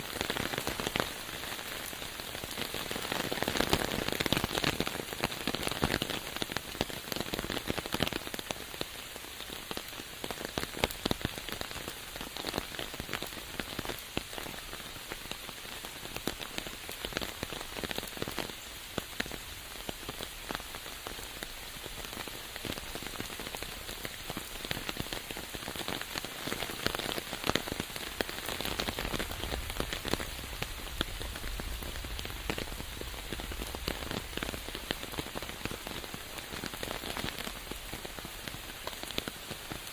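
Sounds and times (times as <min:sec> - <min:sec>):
rain drops on hard surfaces: 0:00.0 - 0:39.9.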